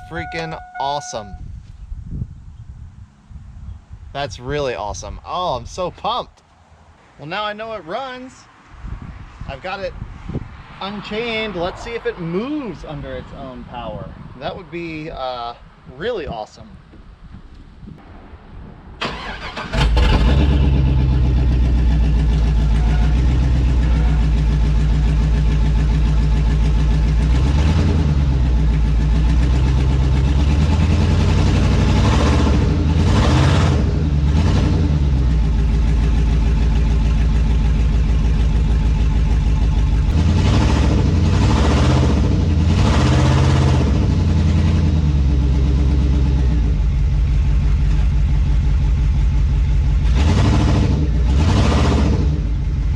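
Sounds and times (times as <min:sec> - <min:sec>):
pickup truck engine revving: 0:19.0 - 0:48.9, 0:49.8 - 0:52.9.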